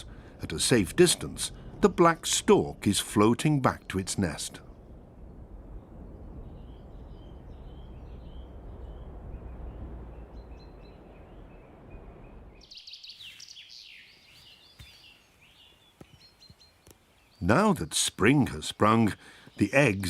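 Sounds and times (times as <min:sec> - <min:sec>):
steady low rumble: 0:00.0 - 0:12.7
songbirds singing and chirping: 0:00.0 - 0:20.0.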